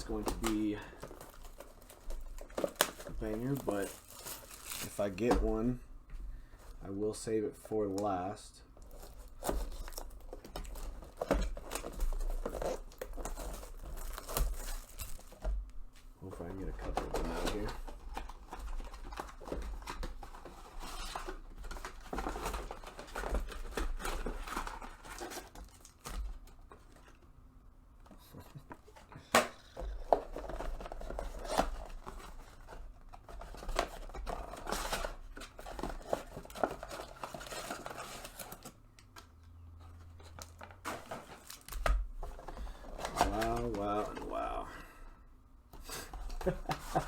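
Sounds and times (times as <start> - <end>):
packaging rustling and tearing: 0.0 - 5.7, 7.9 - 27.2, 28.3 - 44.7, 46.0 - 47.0.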